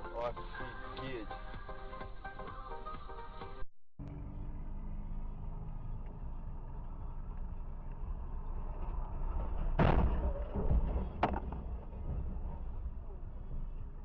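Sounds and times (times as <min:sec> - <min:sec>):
road and engine rumble: 0:00.0 - 0:14.0
vehicle crash impact: 0:09.2 - 0:13.4.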